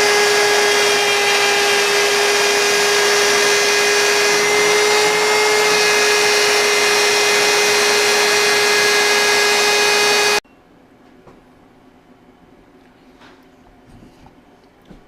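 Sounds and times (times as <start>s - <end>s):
router spindle high whine: 0.0s - 10.4s.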